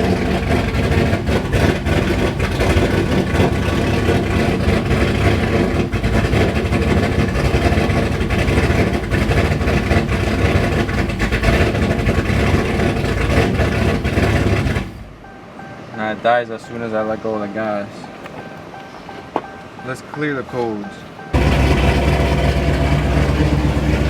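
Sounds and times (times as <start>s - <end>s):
loud choppy engine revving: 0.0s - 15.2s, 21.3s - 24.0s.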